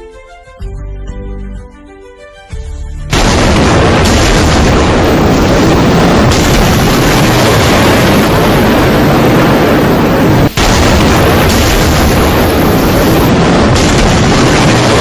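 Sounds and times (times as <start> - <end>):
heavy rain: 3.1 - 15.0
storm wind roaring: 3.1 - 15.0.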